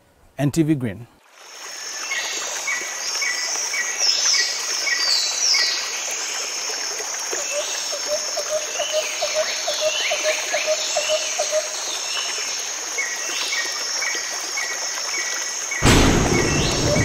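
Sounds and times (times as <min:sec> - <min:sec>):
crickets chirping: 0:01.4 - 0:17.0
birds chirping: 0:15.8 - 0:17.0
sudden loud rushing noise: 0:15.8 - 0:17.0.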